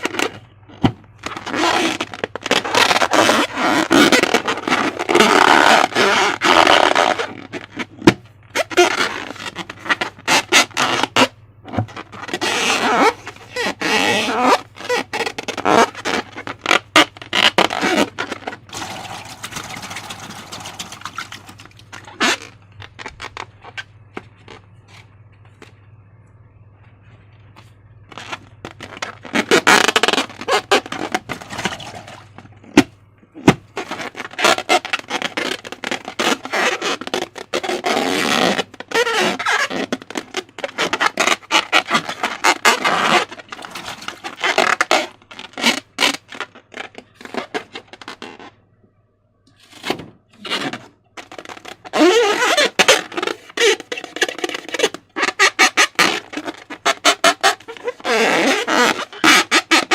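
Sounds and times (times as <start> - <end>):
faint steady hum: 0.0 - 38.0, 46.6 - 59.2
slime squelching and crackling: 11.9 - 24.6.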